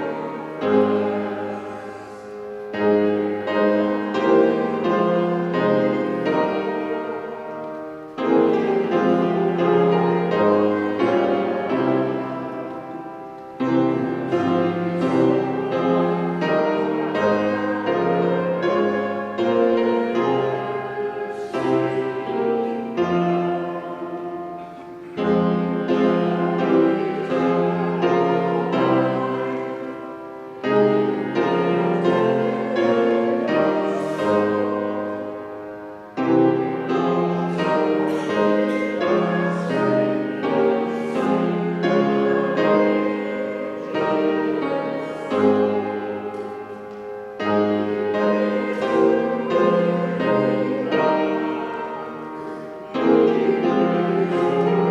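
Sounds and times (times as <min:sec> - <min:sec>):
slow chordal piano music: 0:00.0 - 0:54.9.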